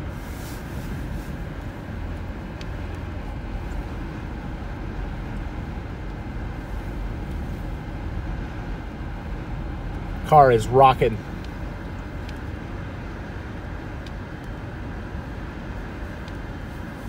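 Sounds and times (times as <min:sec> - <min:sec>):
wind gusts against a car: 0:00.0 - 0:17.0.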